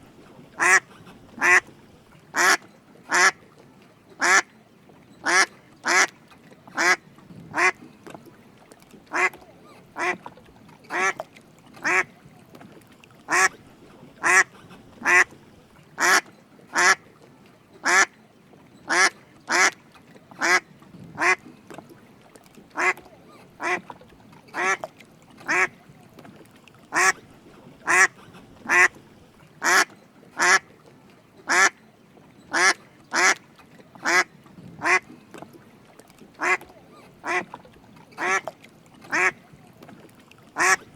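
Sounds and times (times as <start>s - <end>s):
duck quacking: 0.6s - 1.7s, 2.4s - 3.4s, 4.2s - 4.4s, 5.2s - 6.1s, 9.1s - 9.4s, 10.0s - 10.2s, 10.9s - 11.2s, 11.8s - 12.1s, 13.3s - 13.6s, 14.2s - 15.3s, 16.0s - 17.0s, 18.9s - 19.8s, 21.2s - 21.4s, 22.8s - 23.0s, 23.6s - 23.8s, 24.6s - 24.8s, 25.5s - 25.7s, 26.9s - 27.2s, 27.8s - 29.0s, 29.6s - 30.6s, 31.5s - 31.8s, 32.5s - 33.4s, 34.0s - 35.0s, 36.4s - 36.6s, 37.2s - 37.4s, 38.2s - 38.4s, 39.1s - 39.4s, 40.6s - 40.9s.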